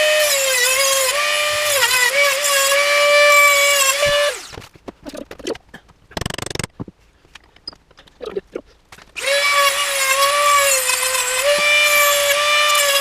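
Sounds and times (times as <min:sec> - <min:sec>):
rotary tool cutting metal: 0:00.0 - 0:04.6, 0:09.2 - 0:13.0.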